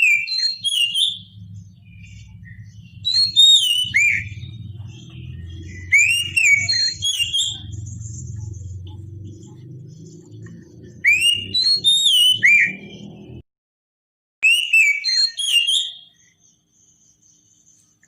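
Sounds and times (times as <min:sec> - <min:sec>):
bird singing whistled notes: 0:00.0 - 0:13.4, 0:14.4 - 0:18.0
low hum: 0:01.1 - 0:11.9.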